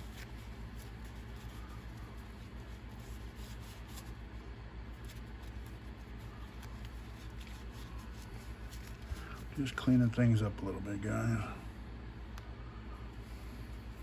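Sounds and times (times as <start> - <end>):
rustling and rubbing by hand: 0.0 - 14.0
steady low hum: 0.0 - 14.0.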